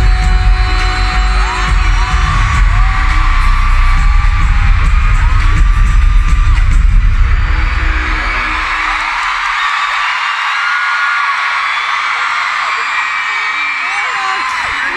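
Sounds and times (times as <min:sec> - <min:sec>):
person singing: 0:00.0 - 0:06.5
heavy bass beat: 0:00.0 - 0:09.6
pop song over loudspeakers: 0:00.0 - 0:14.9
crowd shouting: 0:01.0 - 0:14.9.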